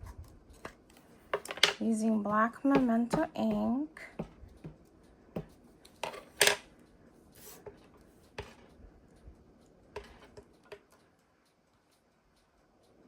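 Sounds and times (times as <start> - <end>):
rubber stamps tapping: 1.3 - 4.8.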